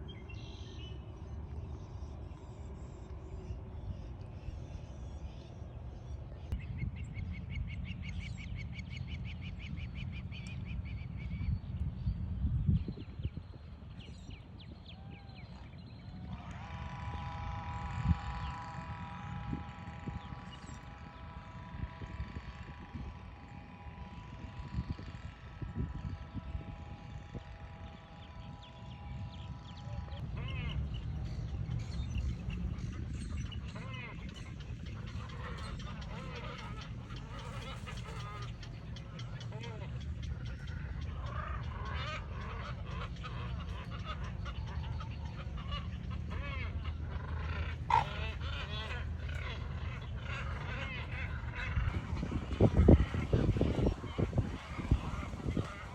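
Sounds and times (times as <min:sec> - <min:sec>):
dense chorus of bird calls: 0:00.0 - 0:55.9
steady low rumble: 0:00.0 - 0:55.9
motor vehicle running: 0:15.6 - 0:55.9.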